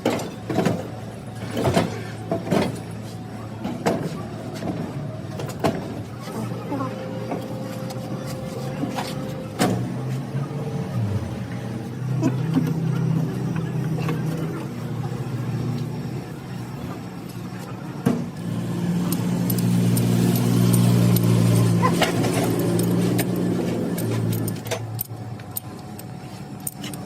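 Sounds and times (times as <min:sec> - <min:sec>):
engine running: 0:00.0 - 0:27.0
sharp clicks: 0:19.0 - 0:21.3.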